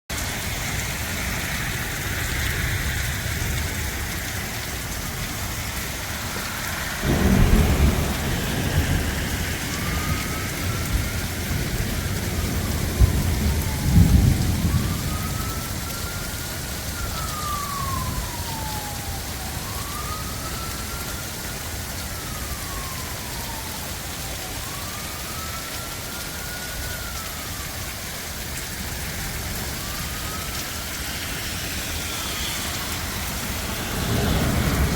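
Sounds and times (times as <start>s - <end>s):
heavy rain falling: 0.1s - 34.9s
thunder rumbling: 0.1s - 34.9s
distant siren wailing: 0.2s - 34.9s.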